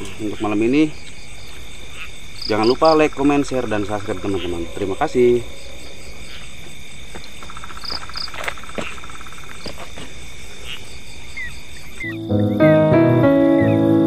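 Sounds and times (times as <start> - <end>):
crickets and insects trilling: 0.0 - 14.0
piano music: 12.0 - 14.0.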